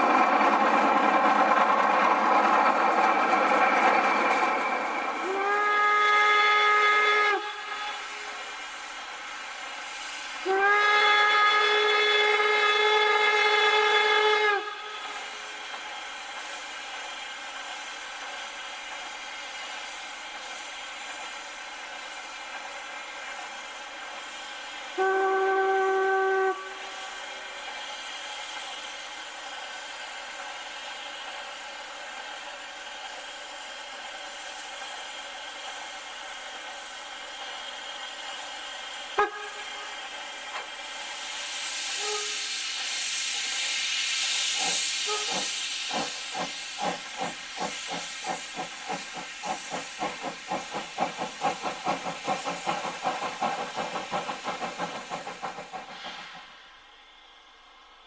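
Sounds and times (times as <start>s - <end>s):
steam hissing: 0.0s - 58.0s
steam locomotive whistle blasts: 5.0s - 15.7s, 22.8s - 29.0s, 37.8s - 47.3s.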